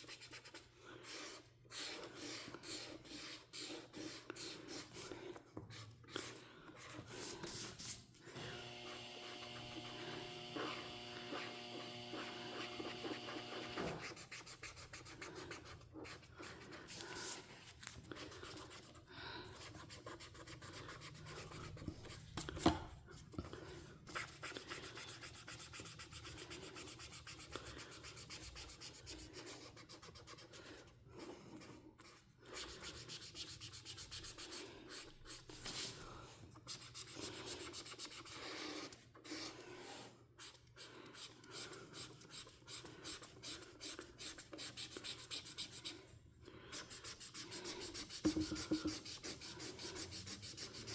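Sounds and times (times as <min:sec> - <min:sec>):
marker scratching on paper: 0:00.0 - 0:08.1, 0:08.8 - 0:22.8, 0:24.1 - 0:30.9, 0:31.6 - 0:36.0, 0:36.6 - 0:46.1, 0:46.7 - 0:50.9.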